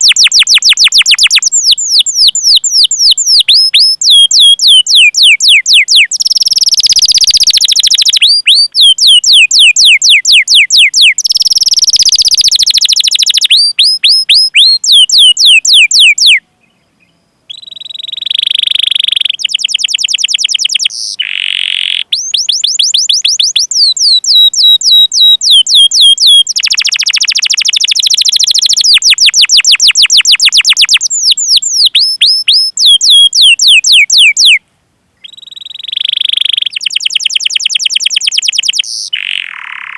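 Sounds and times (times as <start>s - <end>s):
canary singing: 0.0s - 34.6s, 35.2s - 39.9s.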